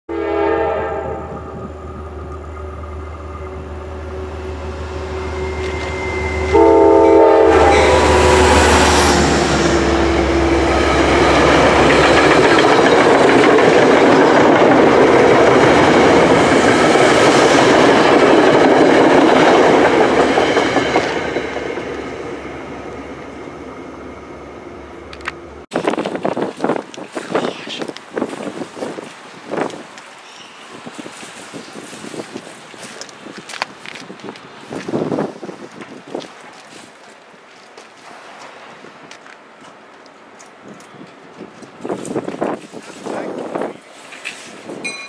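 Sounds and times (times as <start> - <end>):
train horn chord: 0.1 - 11.7
train wheels roaring on rail: 0.1 - 45.0.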